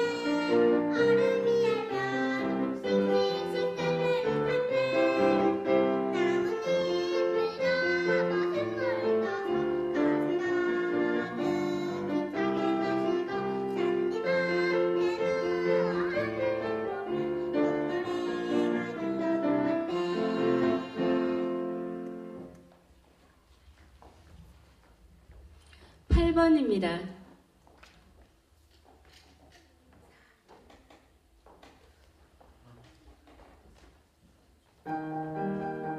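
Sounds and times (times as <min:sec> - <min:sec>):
child singing: 0:00.0 - 0:21.5
piano accompaniment: 0:00.0 - 0:23.0, 0:34.5 - 0:35.9.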